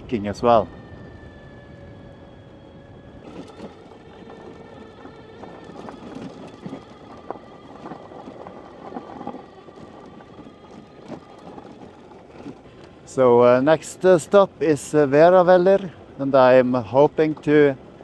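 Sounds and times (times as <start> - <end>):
electric motor whining: 2.6 - 12.8
tyres on rough road: 2.6 - 13.0.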